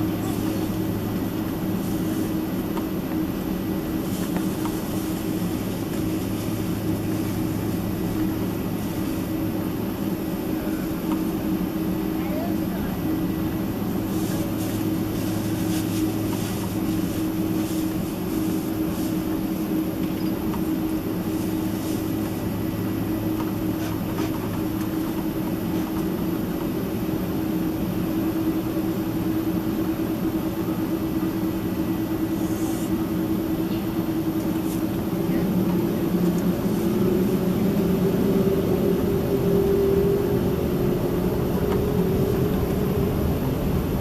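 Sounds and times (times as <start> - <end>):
aircraft cabin engine hum: 0.0 - 44.0.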